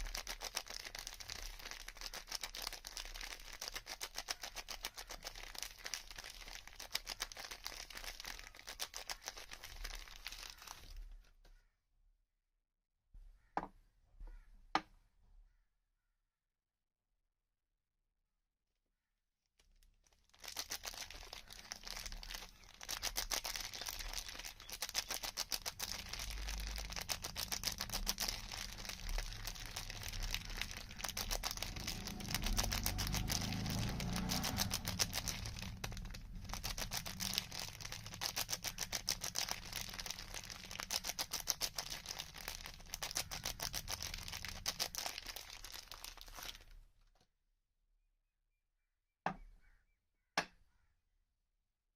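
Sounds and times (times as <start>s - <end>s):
packaging crinkling: 0.0s - 11.1s, 19.6s - 46.8s.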